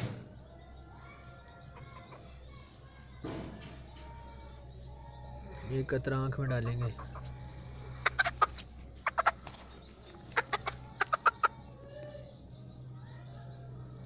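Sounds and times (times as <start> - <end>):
chicken clucking: 1.5 - 2.6, 6.2 - 12.3
steady low hum: 4.2 - 14.0.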